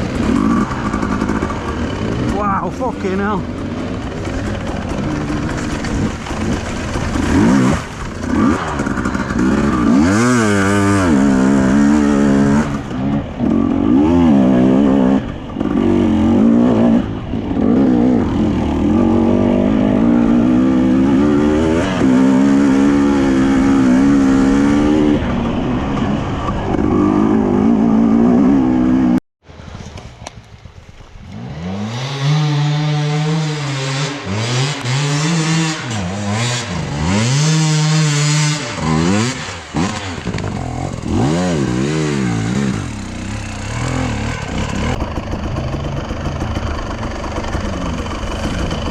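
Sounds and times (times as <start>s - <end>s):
dirt bike engine revving: 0.0s - 29.2s, 31.3s - 48.9s.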